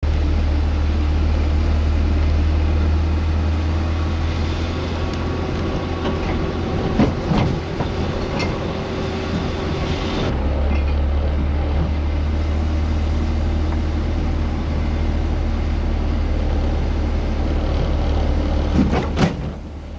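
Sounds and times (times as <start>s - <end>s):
car road and engine rumble: 0.0s - 19.9s
knocks and rattles: 4.9s - 11.1s.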